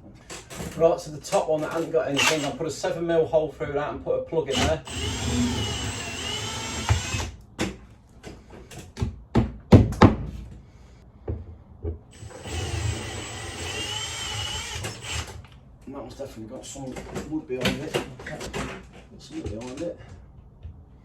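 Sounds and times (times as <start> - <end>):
cordless drill boring: 2.2 - 2.6, 4.5 - 7.4, 12.1 - 15.4.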